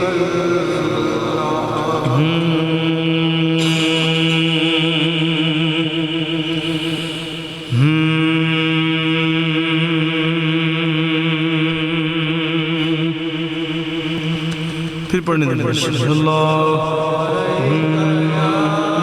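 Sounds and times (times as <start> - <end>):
man chanting: 0.0 - 19.0.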